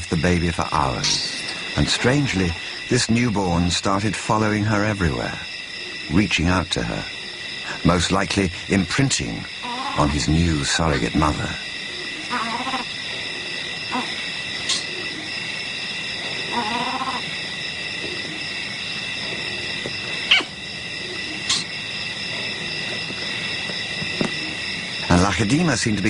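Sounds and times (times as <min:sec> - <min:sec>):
high-pitched insect chorus: 0:00.0 - 0:26.0
short animal calls: 0:09.6 - 0:10.1, 0:12.2 - 0:12.9, 0:16.5 - 0:17.3, 0:20.3 - 0:20.6.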